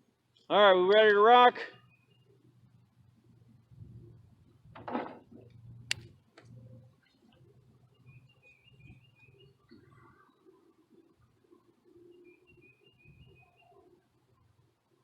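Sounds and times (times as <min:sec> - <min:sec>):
faint bird chirps: 0:01.7 - 0:02.5, 0:06.6 - 0:14.7
sharp clicks: 0:05.9 - 0:06.5.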